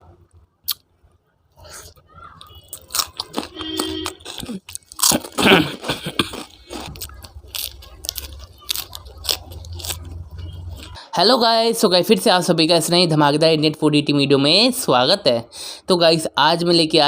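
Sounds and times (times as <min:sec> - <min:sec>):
person chewing crunchy food: 0:01.6 - 0:11.0.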